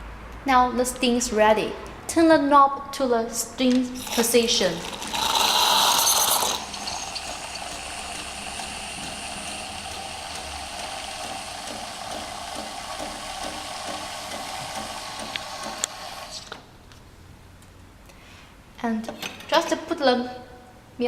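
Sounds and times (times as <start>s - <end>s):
coffee maker steam wand hissing: 4.0s - 16.5s.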